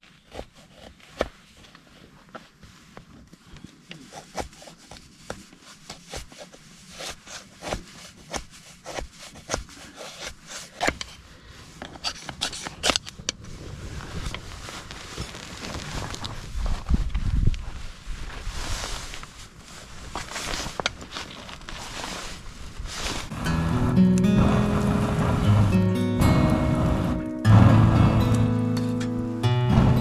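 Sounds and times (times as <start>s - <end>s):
rushing noise: 23.3s - 28.7s.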